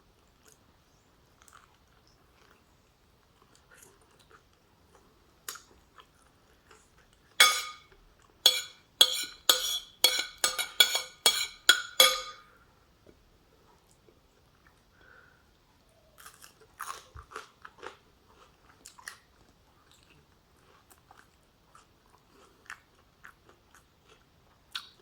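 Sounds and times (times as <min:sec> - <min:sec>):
faint soft chewing: 0:00.2 - 0:00.6, 0:01.2 - 0:07.2, 0:15.9 - 0:25.0
utensil clinking against bowl: 0:07.4 - 0:07.9, 0:08.5 - 0:12.5.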